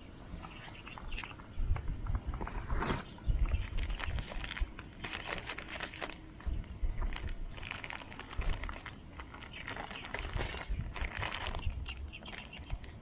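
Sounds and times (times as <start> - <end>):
camp cooking gear clinking: 3.6 - 13.0.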